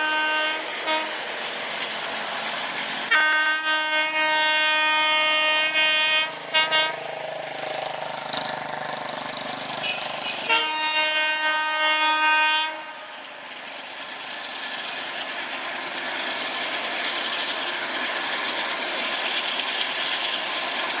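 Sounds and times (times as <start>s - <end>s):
train horn: 0.0s - 1.2s, 3.1s - 7.0s, 9.8s - 13.2s
moving train noise: 0.0s - 21.0s.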